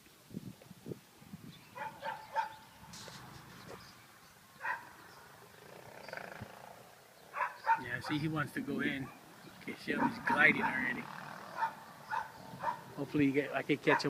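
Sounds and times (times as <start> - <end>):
faint animal calls: 4.6 - 13.0.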